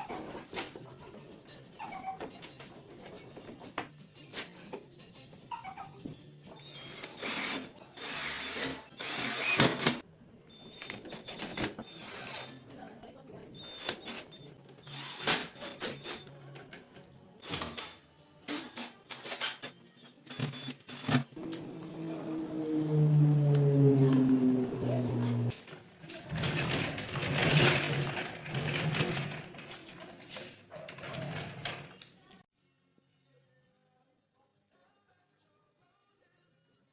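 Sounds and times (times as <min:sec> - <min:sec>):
power drill running: 0:06.8 - 0:10.0.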